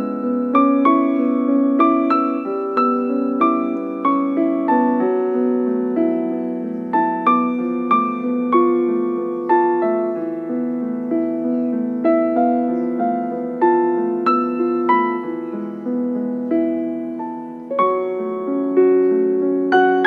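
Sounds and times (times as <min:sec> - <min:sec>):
soft piano music: 0:00.0 - 0:20.0.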